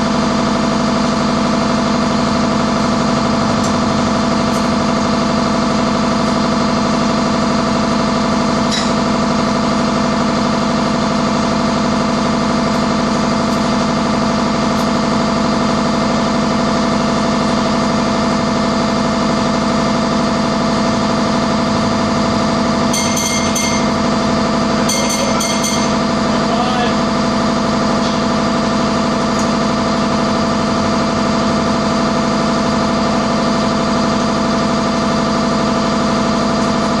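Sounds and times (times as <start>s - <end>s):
engine idling drone: 0.0s - 37.0s
high-pitched beeping: 22.9s - 24.1s, 24.8s - 26.1s.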